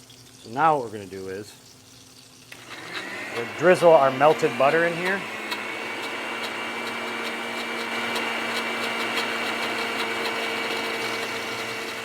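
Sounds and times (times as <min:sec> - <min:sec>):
blender motor running: 0:02.5 - 0:12.0.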